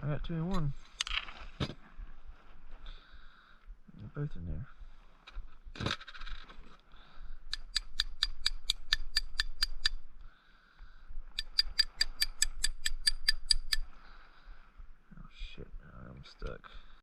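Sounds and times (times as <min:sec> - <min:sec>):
ratchet wrench clicking: 0:07.5 - 0:10.0, 0:11.4 - 0:13.8.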